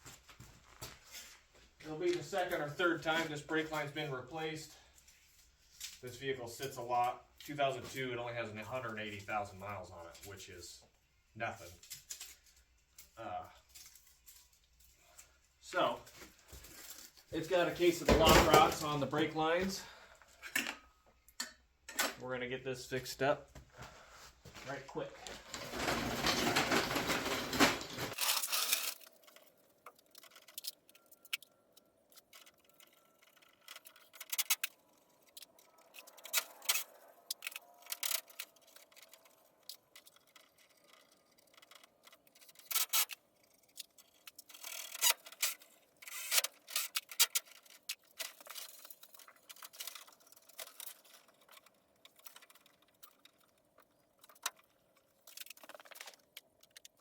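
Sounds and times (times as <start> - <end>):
hand tools clinking and scraping: 11.6 - 22.4, 23.2 - 57.0.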